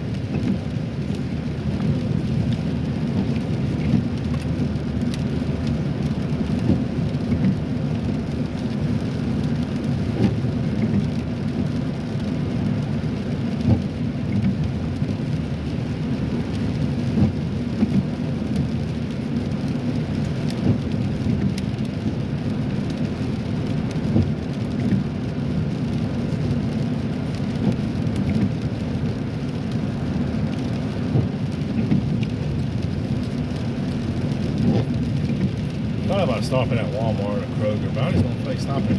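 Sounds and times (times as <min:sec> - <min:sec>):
raindrops ticking on car roof: 0:00.0 - 0:38.9
road and tyre rumble: 0:00.0 - 0:38.9.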